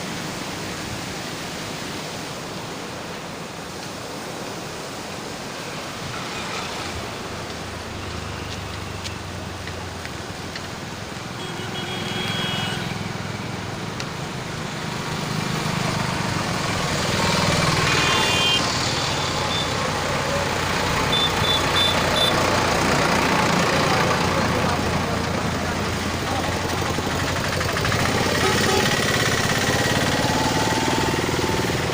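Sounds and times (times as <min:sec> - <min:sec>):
traffic passing over bridge: 0:00.0 - 0:31.9
short high horn beeps: 0:21.1 - 0:22.4.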